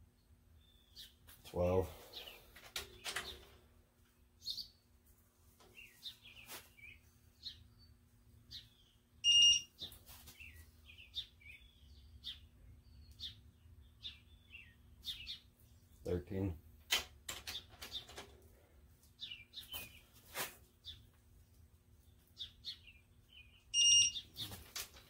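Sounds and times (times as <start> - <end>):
small birds chirping: 0.0 - 16.8, 17.4 - 25.0
loud electronic beep: 9.2 - 9.7, 23.8 - 24.2.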